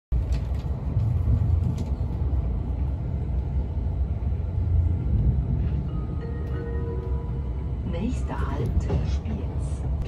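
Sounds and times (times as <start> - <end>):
train wheels rumbling on track: 0.1 - 10.0.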